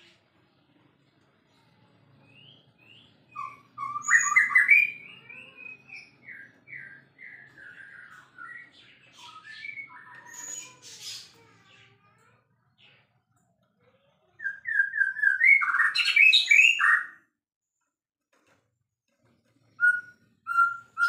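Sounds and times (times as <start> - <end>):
bird singing whistled notes: 2.3 - 10.7, 19.8 - 21.0.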